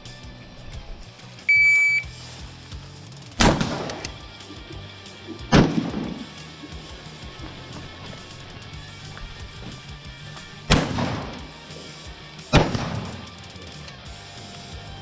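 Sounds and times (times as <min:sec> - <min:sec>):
shot timer beep: 0:01.5 - 0:02.1
echoing rifle shots: 0:03.4 - 0:04.4, 0:05.5 - 0:06.3, 0:10.4 - 0:11.6, 0:12.5 - 0:13.3.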